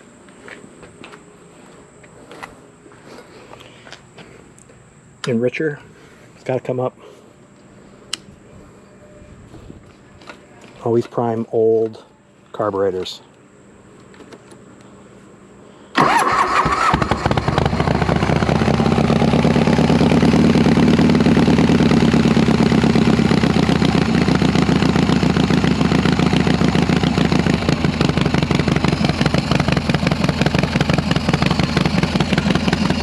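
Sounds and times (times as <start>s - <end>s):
motorcycle engine starting and idling: 16.0s - 33.0s.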